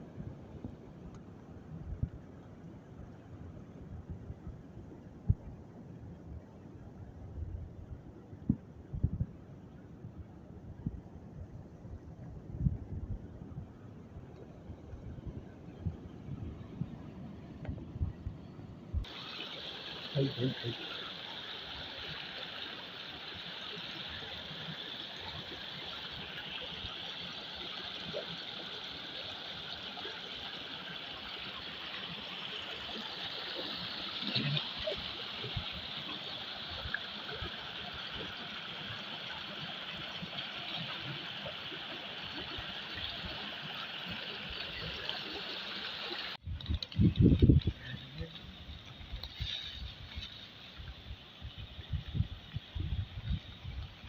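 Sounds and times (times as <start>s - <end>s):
running water: 18.9s - 54.0s.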